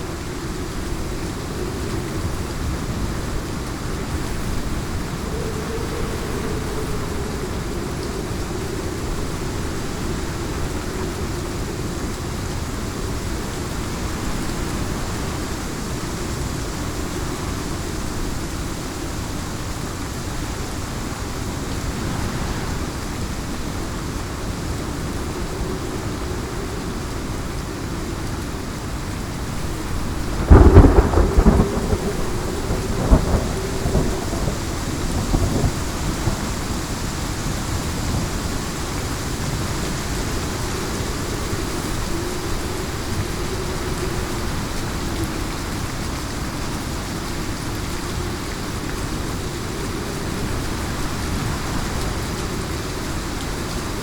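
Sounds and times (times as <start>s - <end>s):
heavy rain falling: 0.0s - 54.0s
thunder clap rumbling: 20.5s - 24.8s, 29.6s - 36.8s.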